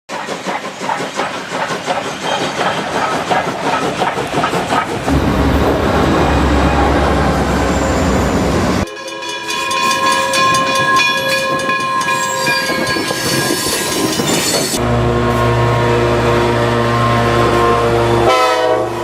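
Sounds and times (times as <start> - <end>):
train wheels clattering on rails: 0.1 - 14.8
deep rumble: 5.0 - 8.8.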